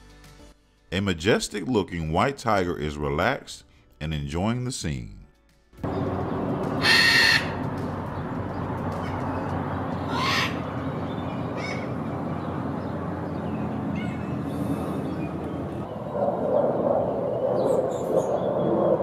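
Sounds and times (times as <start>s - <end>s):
harsh bird calls: 5.9s - 16.2s.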